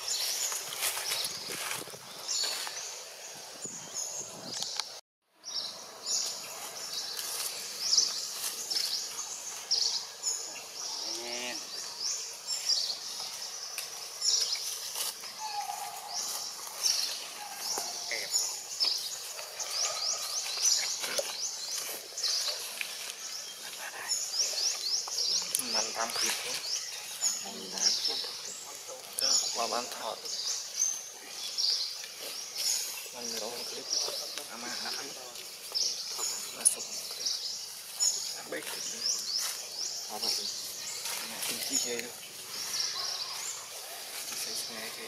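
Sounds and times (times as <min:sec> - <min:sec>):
birds chirping high: 0:00.0 - 0:45.0
lower bird calls: 0:14.3 - 0:35.1.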